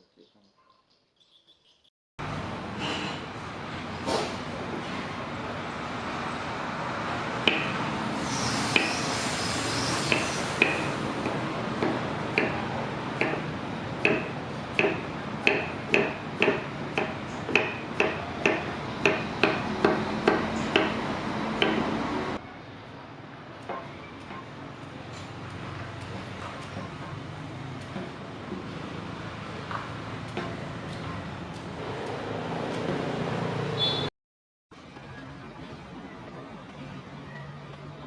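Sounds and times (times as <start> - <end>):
hammer striking anvil: 7.5 - 7.8.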